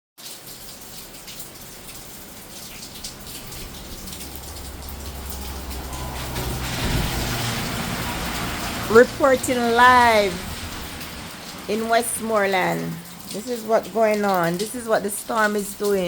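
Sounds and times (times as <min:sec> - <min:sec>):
drip splashes: 0:00.2 - 0:16.0
heavy rain pouring: 0:00.2 - 0:16.0
low rumble: 0:03.4 - 0:11.4.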